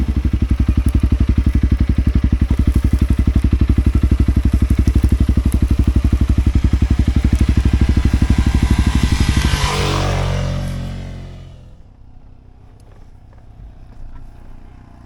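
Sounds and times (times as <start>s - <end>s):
motorcycle engine pulsing: 0.0s - 15.0s
rushing swell: 5.3s - 11.6s.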